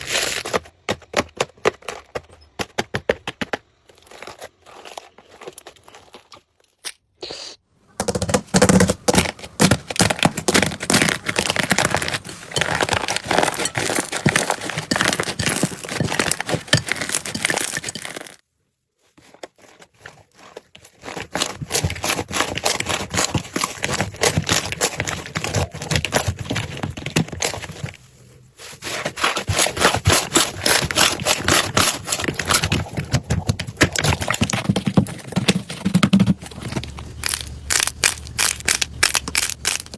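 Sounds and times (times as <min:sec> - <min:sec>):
slime crackling and popping: 0:36.8 - 0:39.9.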